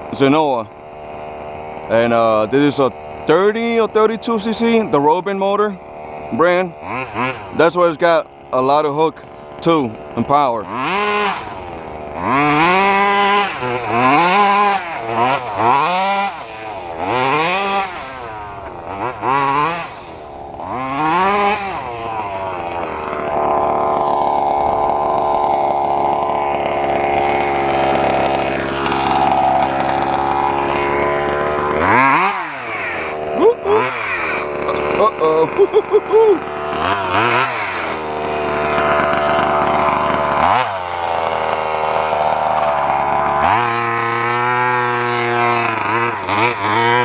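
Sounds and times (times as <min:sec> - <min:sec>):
two-stroke engine revving: 0:00.0 - 0:47.0.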